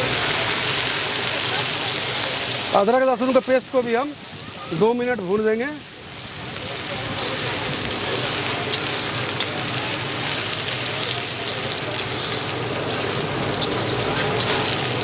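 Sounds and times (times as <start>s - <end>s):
onions sizzling in hot oil: 0.0s - 15.0s
small pops and crackles: 6.2s - 15.0s
spatula stirring in a pan: 11.0s - 15.0s.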